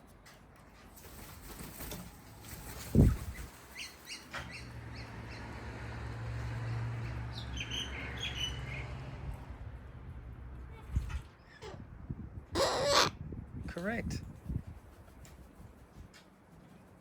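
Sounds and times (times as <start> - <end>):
cockatoos calling: 12.6 - 13.1.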